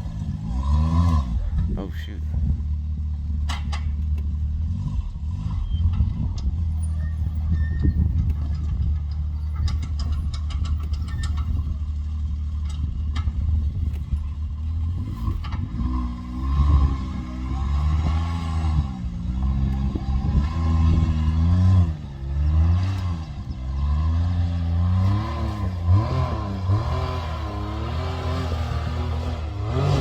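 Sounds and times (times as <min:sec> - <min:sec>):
off-road vehicle engine rumbling: 0:00.0 - 0:30.0
sharp clicks and knocks: 0:03.4 - 0:04.4, 0:08.1 - 0:11.8, 0:12.6 - 0:14.3.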